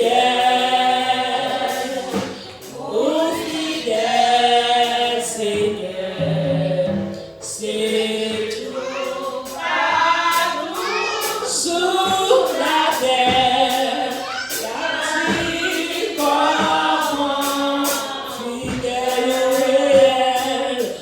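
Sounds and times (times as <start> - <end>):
group singing worship song: 0.0 - 21.0.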